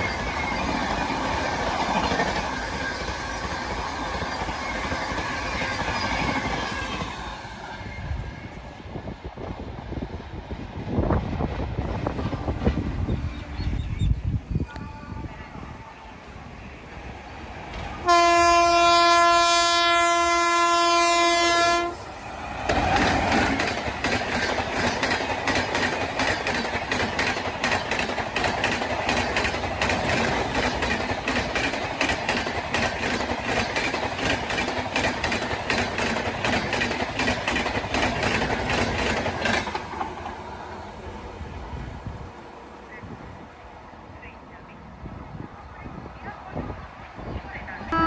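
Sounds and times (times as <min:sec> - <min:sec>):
rushing noise of passing train: 0:00.0 - 0:48.0
locomotive air horn blast: 0:18.0 - 0:22.0
train wheels clacking over rail joints: 0:22.6 - 0:40.4.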